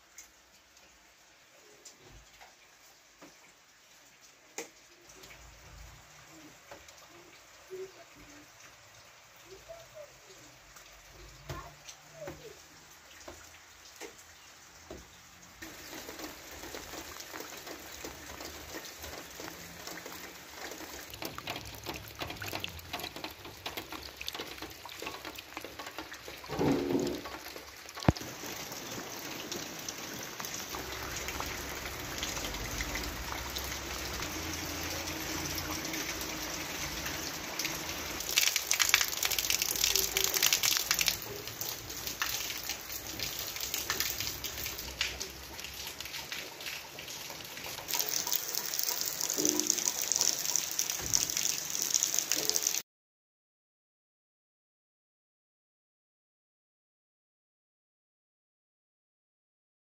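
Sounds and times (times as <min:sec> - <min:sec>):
rain pattering: 0:00.0 - 0:52.8.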